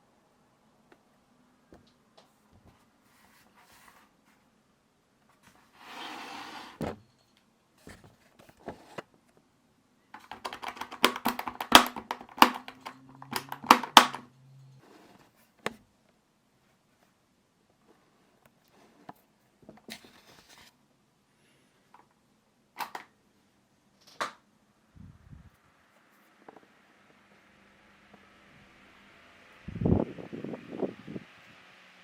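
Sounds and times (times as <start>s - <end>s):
desk fan clicks and knocks: 10.2s - 14.3s.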